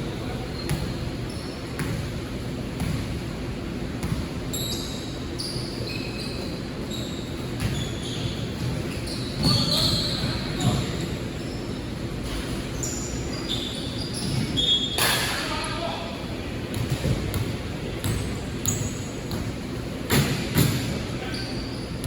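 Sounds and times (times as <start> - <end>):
voices in a hall: 0.0 - 2.7, 4.5 - 22.0
sneakers squeaking on floor: 0.2 - 3.3, 4.0 - 16.0, 16.6 - 22.0
basketball bouncing on court: 0.6 - 3.3, 3.9 - 4.4, 7.4 - 11.0, 16.6 - 21.0.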